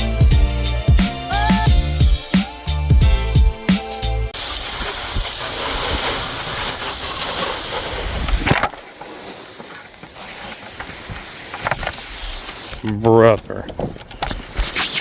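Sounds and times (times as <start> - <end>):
water spraying from hose: 4.4 - 13.0.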